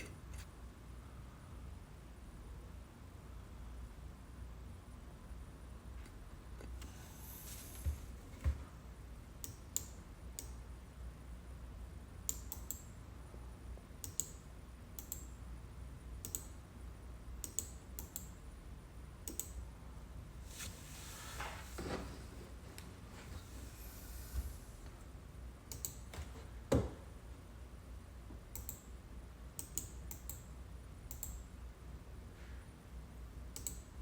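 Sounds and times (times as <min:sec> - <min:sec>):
keyboard and mouse clicks: 0:12.3 - 0:12.9, 0:14.0 - 0:14.4, 0:15.0 - 0:15.3, 0:16.2 - 0:16.5, 0:17.4 - 0:18.3, 0:19.2 - 0:19.6, 0:25.7 - 0:26.2, 0:28.5 - 0:28.9, 0:29.6 - 0:30.5, 0:31.1 - 0:31.4, 0:33.6 - 0:33.9.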